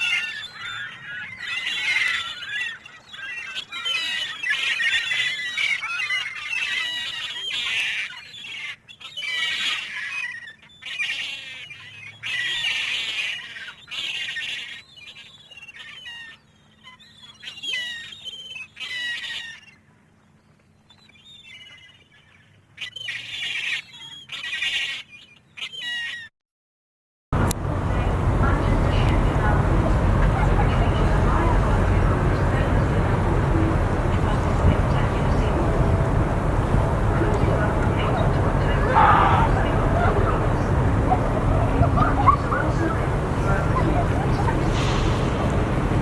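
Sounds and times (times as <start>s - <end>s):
gulls crying: 27.4s - 46.0s.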